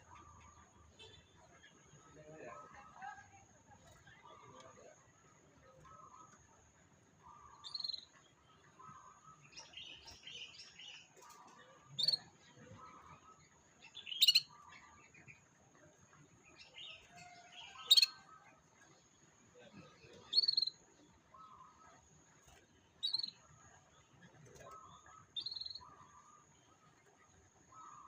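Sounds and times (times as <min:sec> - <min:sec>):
canary chirping: 0:07.4 - 0:15.5, 0:16.5 - 0:19.0, 0:20.2 - 0:20.8, 0:21.4 - 0:28.0.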